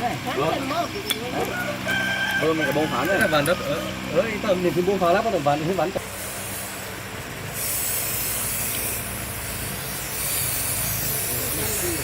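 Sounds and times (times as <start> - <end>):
low mechanical hum: 0.0 - 12.0
hissing spray bursts: 6.0 - 12.0.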